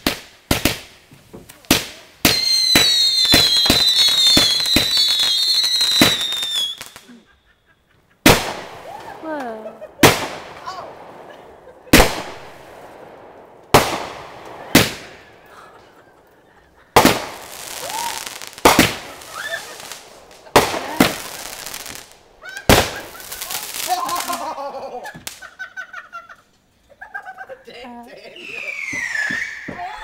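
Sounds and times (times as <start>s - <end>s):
fireworks bangs: 0.0s - 26.1s, 28.3s - 30.0s
crackling hiss of fireworks: 0.0s - 27.4s, 28.1s - 30.0s
voices calling out: 1.6s - 25.4s.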